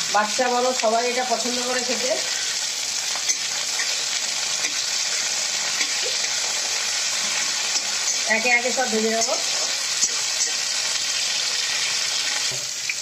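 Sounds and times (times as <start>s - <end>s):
beans sizzling in hot oil: 0.0s - 13.0s.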